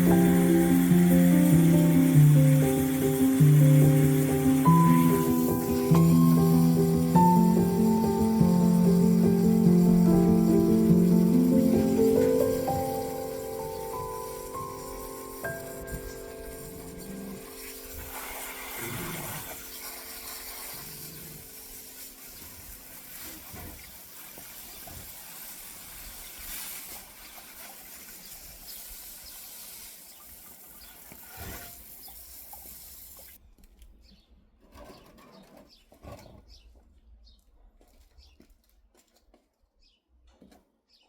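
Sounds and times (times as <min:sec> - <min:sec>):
faint background music: 0:00.0 - 0:22.8
water pouring onto plants: 0:00.0 - 0:33.4.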